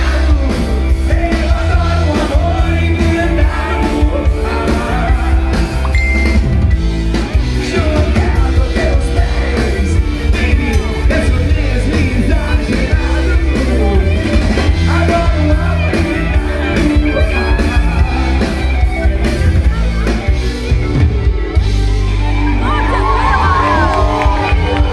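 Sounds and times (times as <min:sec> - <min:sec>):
person singing: 0:00.0 - 0:05.9, 0:07.6 - 0:18.6
rock band playing: 0:00.0 - 0:24.9.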